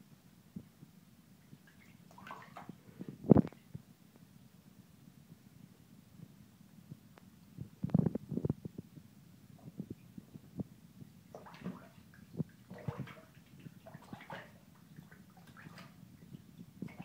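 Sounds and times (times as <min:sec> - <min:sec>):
duckling splashing in water: 0:01.6 - 0:02.8, 0:11.3 - 0:16.0.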